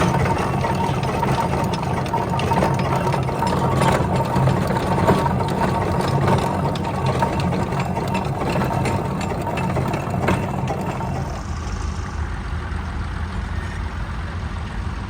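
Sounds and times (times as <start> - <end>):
engine running with mechanical clatter: 0.0 - 15.0.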